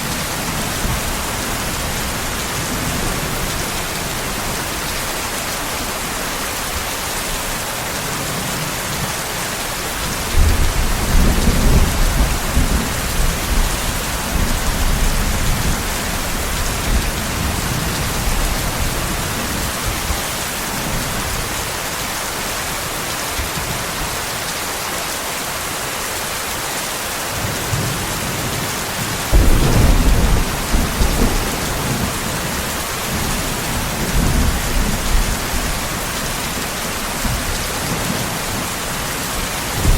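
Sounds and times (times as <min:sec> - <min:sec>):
heavy rain hissing: 0:00.0 - 0:39.9
thunder rumbling: 0:29.0 - 0:39.9.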